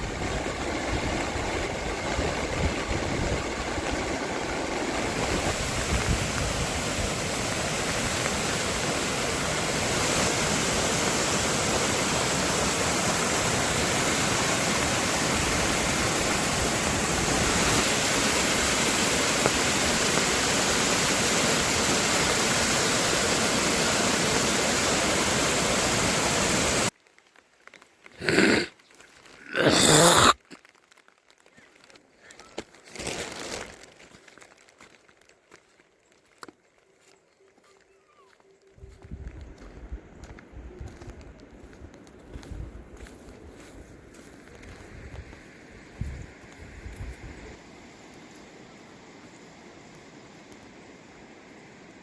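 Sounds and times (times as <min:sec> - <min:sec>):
heavy rain hissing: 0:00.0 - 0:26.9, 0:28.1 - 0:30.6.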